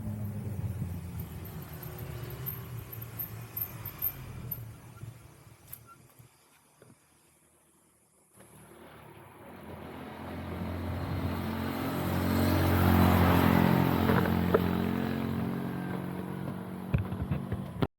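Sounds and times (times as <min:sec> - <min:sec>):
vehicle engine passing by: 0:00.0 - 0:05.0, 0:08.5 - 0:17.8.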